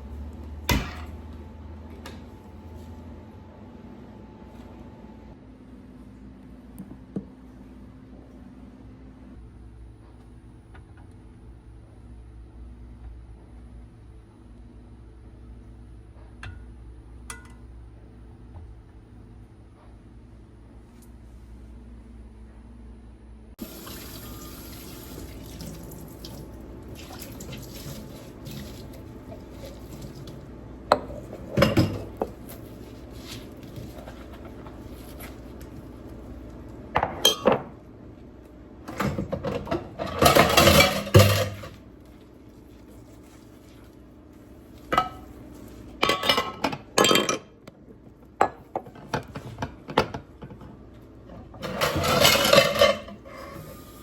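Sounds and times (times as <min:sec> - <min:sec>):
low background hum: 0:00.0 - 0:54.0
dishes and cutlery clattering: 0:39.4 - 0:41.7, 0:51.6 - 0:53.2.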